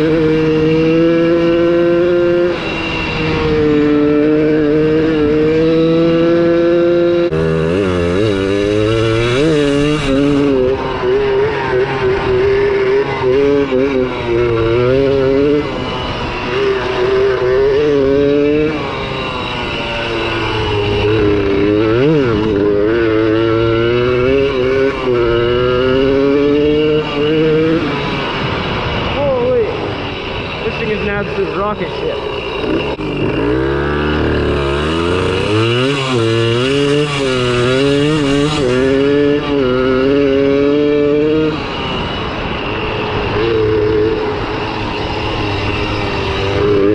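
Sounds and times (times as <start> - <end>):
two-stroke engine revving: 0.0 - 46.9.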